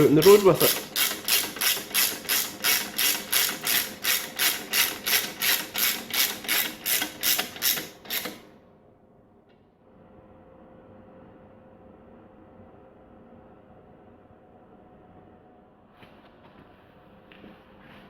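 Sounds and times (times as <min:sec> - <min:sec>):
ratchet wrench clicking: 0:00.2 - 0:08.4.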